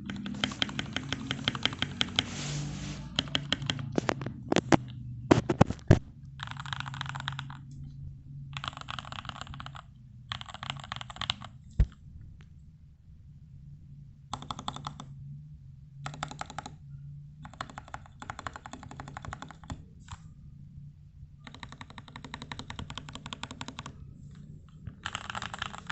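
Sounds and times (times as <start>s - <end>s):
mechanical keyboard typing: 0.0s - 2.3s, 3.1s - 7.7s, 8.6s - 12.0s, 14.3s - 15.1s, 16.0s - 16.8s, 17.4s - 20.2s, 21.4s - 24.0s, 24.7s - 25.9s.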